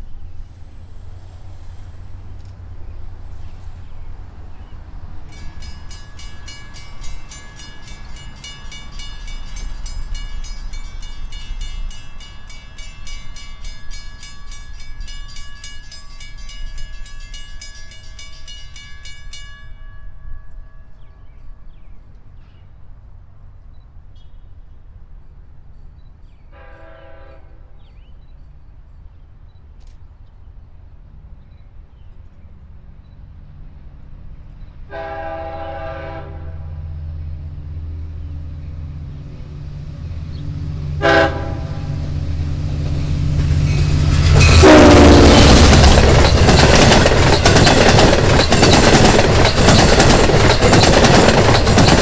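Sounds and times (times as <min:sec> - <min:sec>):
train rumble: 0:00.0 - 0:52.0
crossing bells ringing: 0:05.1 - 0:22.1, 0:41.1 - 0:52.0
train horn blast: 0:26.5 - 0:27.9, 0:34.9 - 0:37.0, 0:40.8 - 0:42.6, 0:43.8 - 0:46.2.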